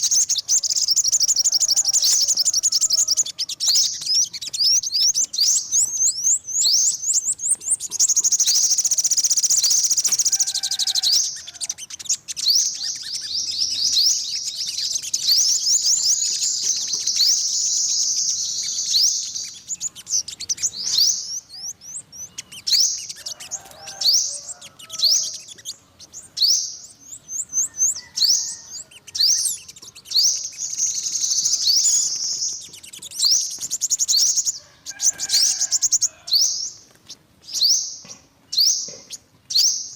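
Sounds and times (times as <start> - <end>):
sunbird chirping trills: 0.0 - 39.9.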